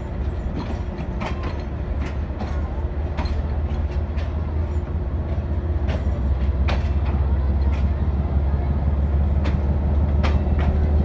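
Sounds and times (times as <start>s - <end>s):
wagons clanking and clicking: 0.0s - 8.1s, 9.2s - 11.0s
freight train rumbling past: 0.0s - 11.0s.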